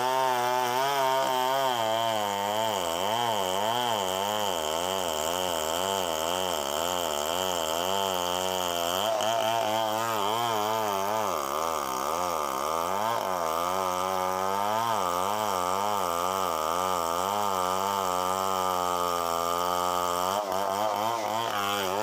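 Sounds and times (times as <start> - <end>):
chainsaw cutting wood: 0.0 - 22.0.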